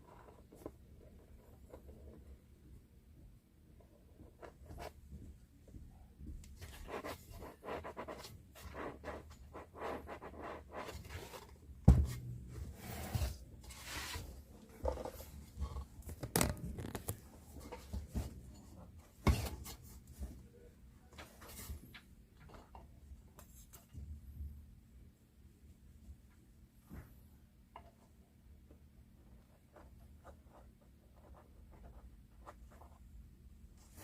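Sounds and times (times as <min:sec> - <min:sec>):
scraping and rustling handling: 0:10.8 - 0:20.4.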